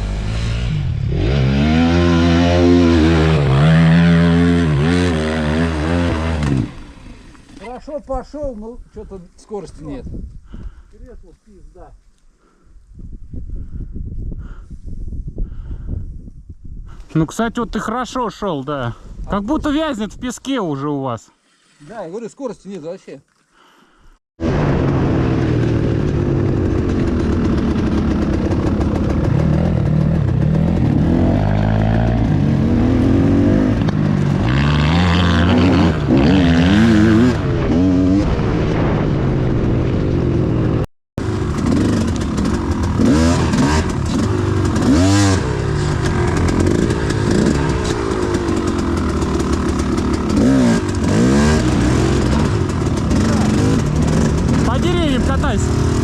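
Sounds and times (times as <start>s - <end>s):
dirt bike engines revving: 0.0s - 8.0s, 25.2s - 56.0s.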